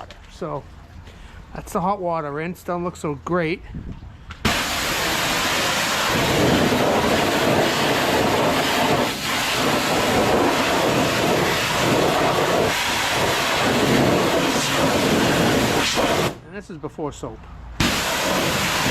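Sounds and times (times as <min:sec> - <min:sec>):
pressure washer spraying water: 0:04.4 - 0:16.4, 0:17.8 - 0:18.9.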